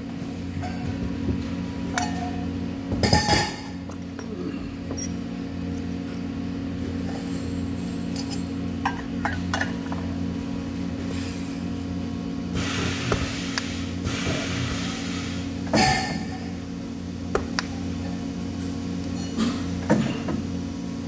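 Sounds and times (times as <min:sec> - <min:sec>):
steady low hum: 0:00.0 - 0:21.0
light metal clinks: 0:04.9 - 0:05.2.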